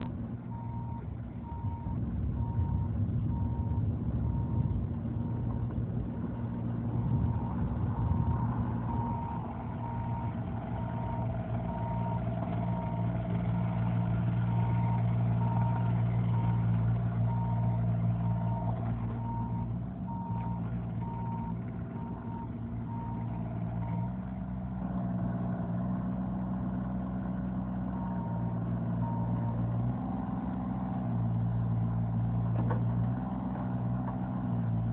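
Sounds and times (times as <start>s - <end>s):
excavator diesel engine running: 0.0s - 34.9s
travel alarm beeping: 0.5s - 4.7s.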